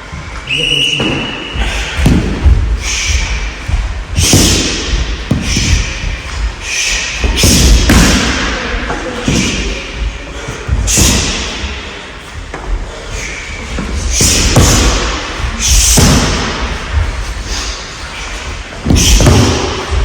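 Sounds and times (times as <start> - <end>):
punches and kicks thudding on mat: 2.0 - 2.8, 4.1 - 6.0, 7.2 - 8.5, 14.2 - 17.2, 18.8 - 20.0.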